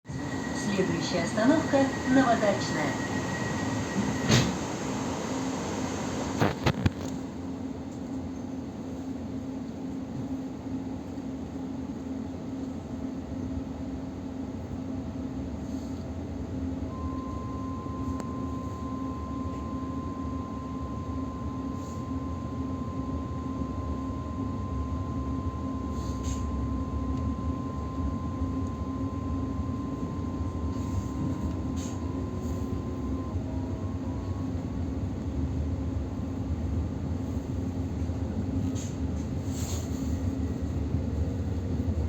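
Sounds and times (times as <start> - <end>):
steady high whine: 0.1 - 7.2.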